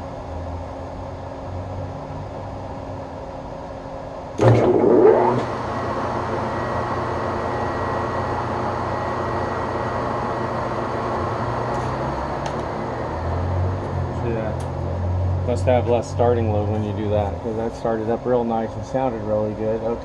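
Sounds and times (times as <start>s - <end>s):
steady machine hum: 0.0s - 20.0s
lathe motor spinning up whine: 4.4s - 20.0s.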